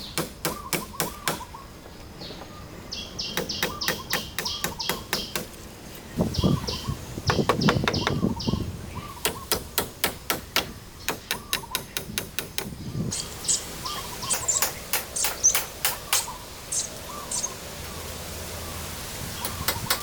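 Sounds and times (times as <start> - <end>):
small birds chirping: 0.0 - 20.0
tool knocking: 7.2 - 8.4.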